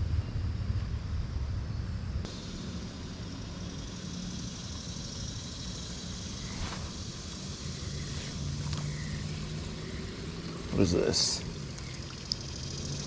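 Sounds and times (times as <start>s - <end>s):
creek water rushing: 6.4s - 13.0s.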